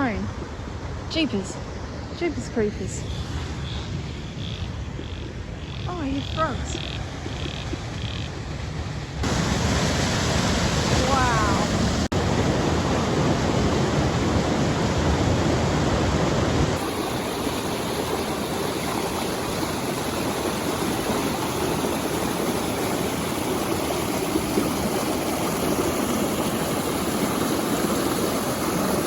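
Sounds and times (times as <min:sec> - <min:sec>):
waterfall and creek rushing: 0:09.2 - 0:29.0.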